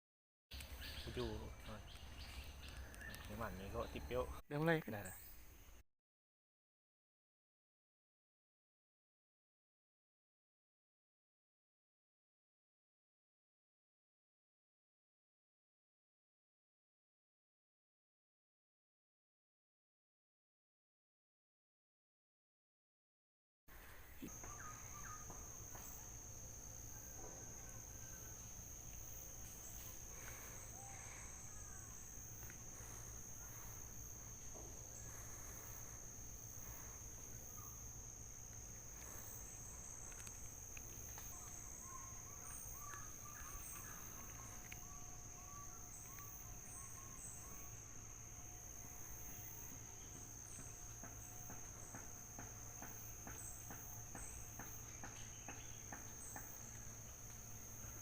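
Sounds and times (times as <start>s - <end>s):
insects buzzing: 0.5s - 5.8s, 23.7s - 58.0s.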